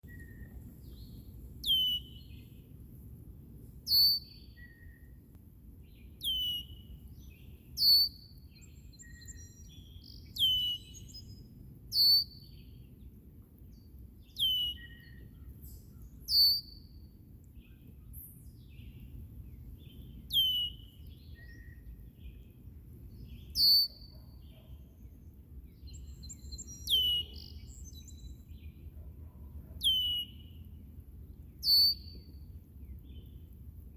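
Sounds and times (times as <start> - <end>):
faint bird chirps: 0.0 - 2.7, 3.8 - 13.0, 13.6 - 33.5
songbird calling: 0.0 - 2.7, 3.8 - 5.2, 5.8 - 12.9, 13.8 - 29.0, 29.7 - 30.8, 31.4 - 33.4
steady low rumble: 0.0 - 3.9, 16.9 - 23.6, 30.4 - 33.9.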